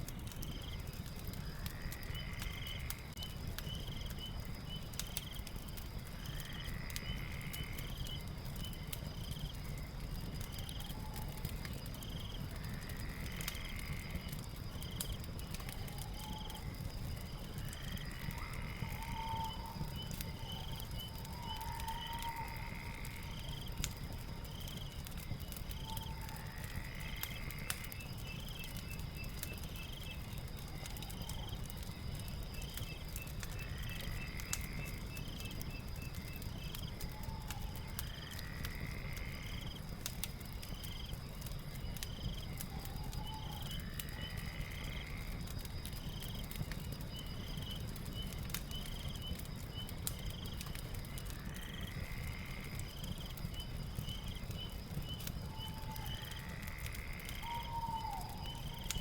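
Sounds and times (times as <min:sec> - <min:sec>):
fire crackling: 0:00.0 - 0:59.0
high insect drone: 0:16.4 - 0:19.8, 0:20.4 - 0:23.9, 0:37.6 - 0:40.0, 0:41.9 - 0:45.5, 0:51.3 - 0:58.9.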